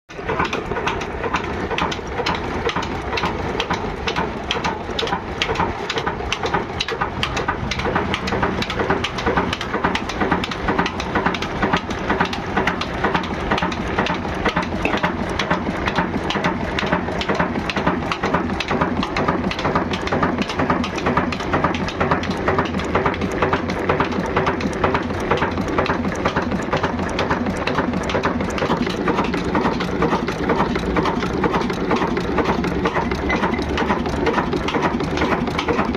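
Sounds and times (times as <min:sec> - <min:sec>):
diesel engine knocking: 0:00.1 - 0:35.9.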